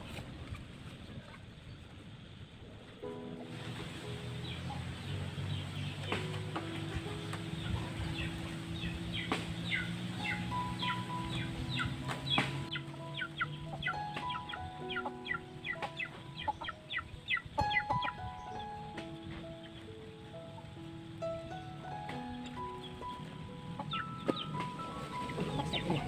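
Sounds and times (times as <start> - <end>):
background music of held notes: 2.9 - 26.0
high chirps falling in pitch: 5.6 - 26.0.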